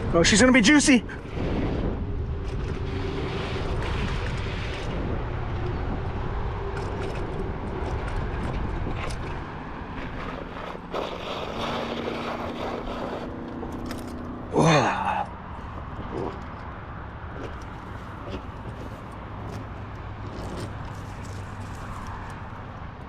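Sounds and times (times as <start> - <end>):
wind rushing over microphone: 0.0 - 23.0
tyre noise: 15.6 - 23.0.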